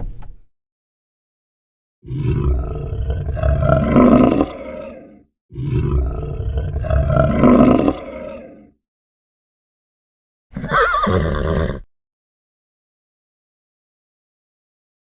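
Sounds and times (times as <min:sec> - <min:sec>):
large animal roaring: 0:02.0 - 0:08.8, 0:10.6 - 0:11.8.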